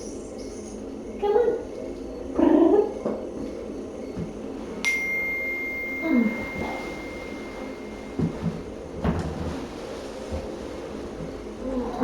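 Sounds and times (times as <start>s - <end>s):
metallic ring with high tone: 4.8s - 8.8s.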